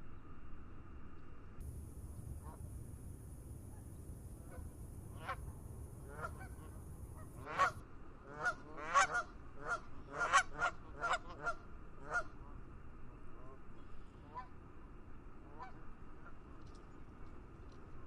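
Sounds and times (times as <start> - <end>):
geese honking: 1.7 - 12.4.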